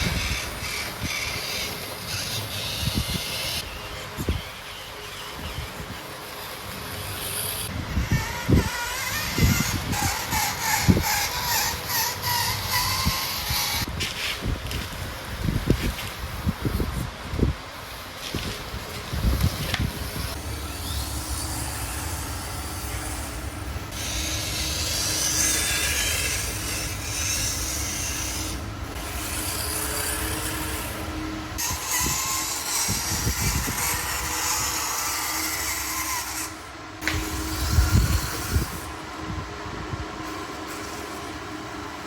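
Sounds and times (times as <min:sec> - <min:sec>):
small electric motor running: 0:00.0 - 0:03.7, 0:06.5 - 0:13.9, 0:19.6 - 0:39.0.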